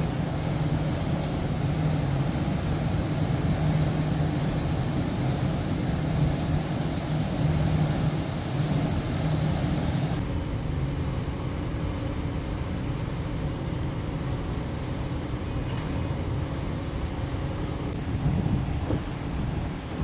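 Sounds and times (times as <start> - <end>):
low hum: 0.0 - 20.0
outdoor rumble: 0.0 - 20.0.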